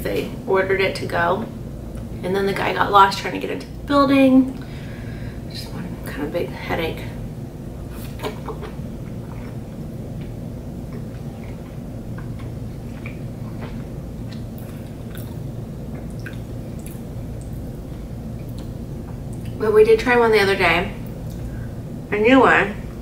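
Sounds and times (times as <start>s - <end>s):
steady low hum: 0.0s - 23.0s
person chewing with wet smacks: 8.0s - 19.6s.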